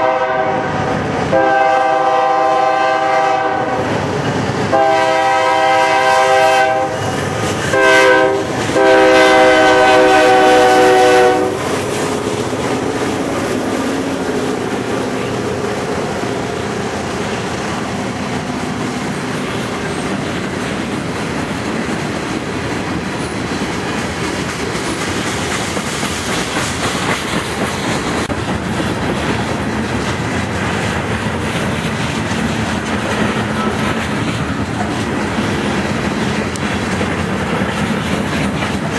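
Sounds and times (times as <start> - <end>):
locomotive horn blasts: 0.0 - 3.8, 4.7 - 7.0, 7.7 - 11.7
freight cars rumbling and clattering: 11.5 - 38.9.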